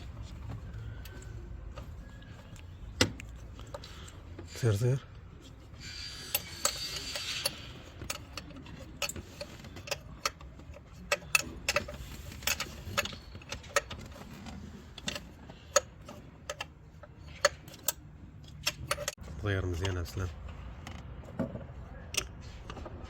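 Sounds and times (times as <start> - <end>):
ratchet wrench clicking: 5.8 - 13.9.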